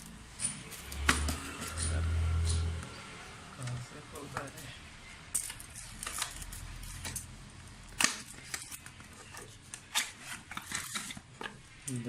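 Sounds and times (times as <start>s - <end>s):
packaging rustling: 7.9s - 12.0s.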